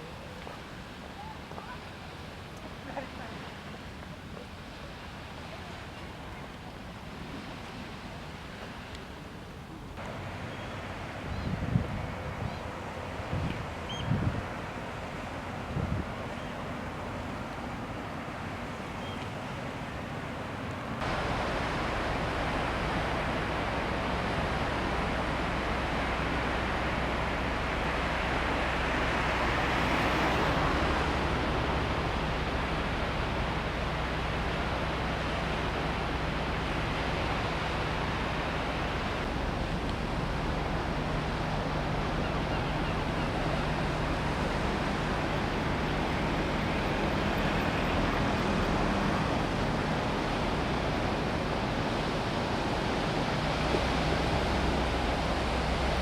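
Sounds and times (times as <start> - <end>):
wash of water: 0.0 - 56.0
wind buffeting microphone: 11.1 - 16.3.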